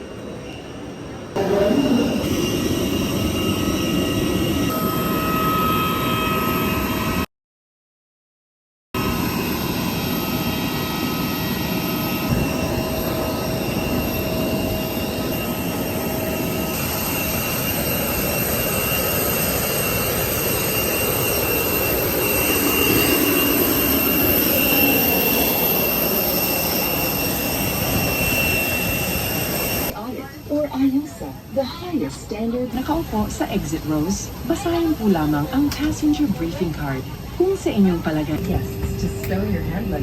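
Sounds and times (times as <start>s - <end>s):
airliner cabin drone: 0.0s - 7.3s, 9.0s - 40.0s
faint steady whining tones: 9.1s - 40.0s.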